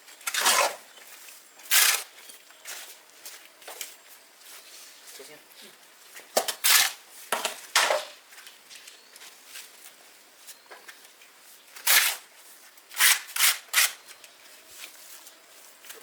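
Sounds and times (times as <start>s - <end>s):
rough scraping strokes: 0.2s - 0.9s.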